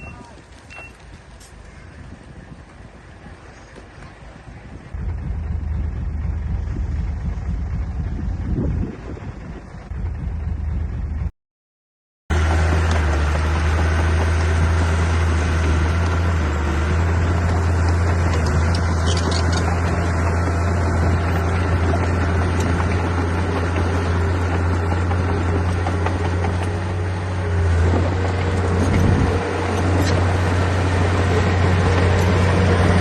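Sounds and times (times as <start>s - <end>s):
heavy diesel engine under load: 0.0s - 11.3s, 12.3s - 33.0s.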